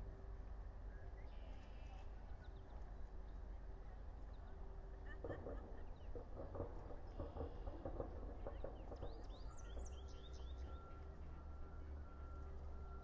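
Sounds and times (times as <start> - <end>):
soft rapid clucking knocks: 5.2 - 9.4.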